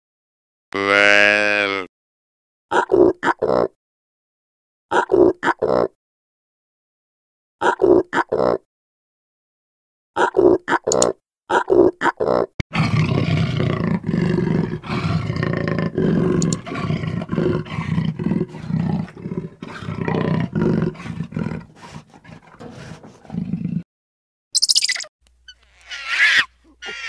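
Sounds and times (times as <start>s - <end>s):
leopard growling: 12.7s - 23.8s
leopard grunts: 12.7s - 23.8s.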